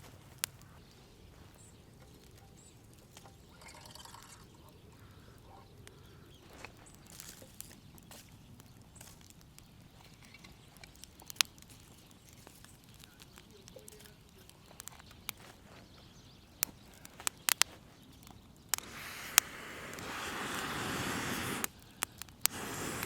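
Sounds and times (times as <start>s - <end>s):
campfire crackling pops: 0.0s - 23.0s
steady hiss: 18.7s - 23.0s.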